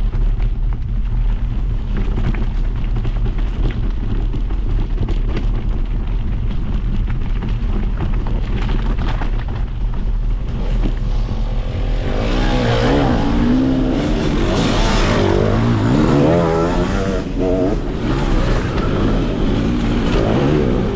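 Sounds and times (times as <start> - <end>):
wind and road rumble: 0.0 - 20.9
motorbike engine passing: 10.5 - 20.9.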